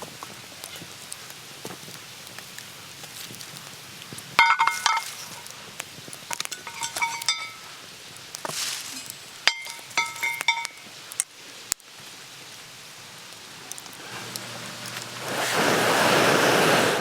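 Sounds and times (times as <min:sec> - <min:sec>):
faint steady hiss: 0:00.0 - 0:17.0
small metal items clinking: 0:04.4 - 0:05.5, 0:06.3 - 0:07.7, 0:08.5 - 0:10.9.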